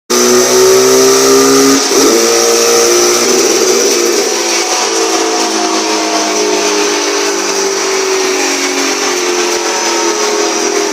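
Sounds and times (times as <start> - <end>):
motorcycle engine high revs whining: 0.1 - 10.9.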